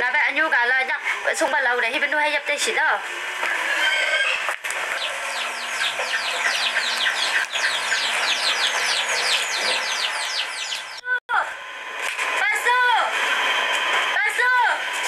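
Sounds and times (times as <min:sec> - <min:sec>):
bird chirping: 0:04.8 - 0:11.1.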